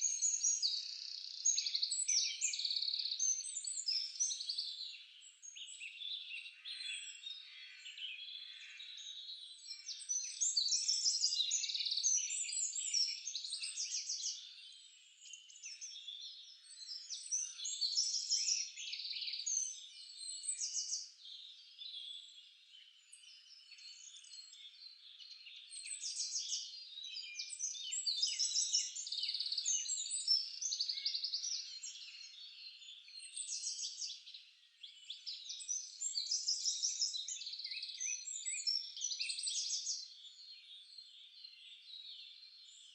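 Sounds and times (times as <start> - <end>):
songbirds singing: 0.0 - 42.9.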